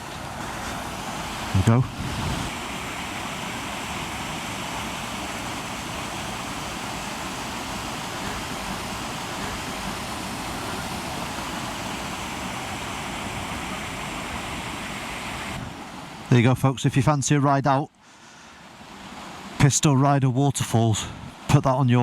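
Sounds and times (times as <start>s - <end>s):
waterfall rushing: 0.0s - 16.6s.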